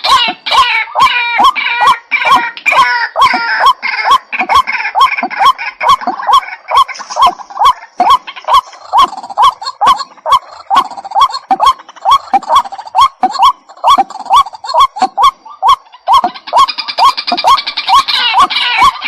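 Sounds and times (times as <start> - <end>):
waterhen calling: 0.0 - 19.0.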